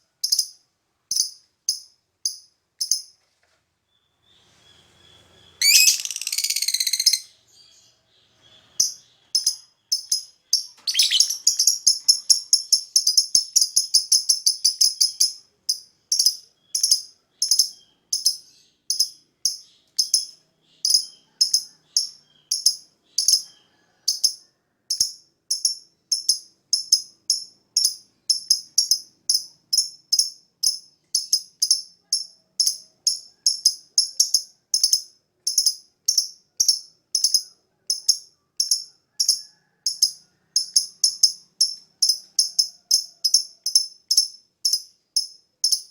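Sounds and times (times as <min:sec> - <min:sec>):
lovebird shrill chirps: 0:04.7 - 0:07.8, 0:08.6 - 0:15.4.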